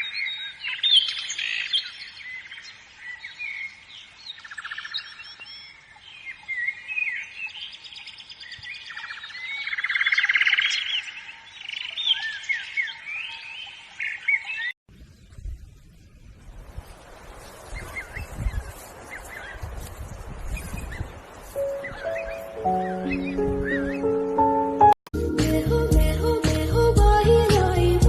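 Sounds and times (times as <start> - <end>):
songbirds chirping and singing: 0.0 - 15.6, 17.4 - 24.9
rapid bird trills: 20.5 - 24.2.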